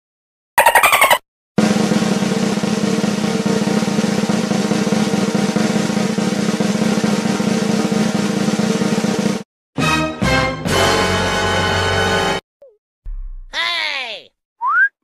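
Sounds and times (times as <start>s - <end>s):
snare drum roll: 1.6s - 9.4s.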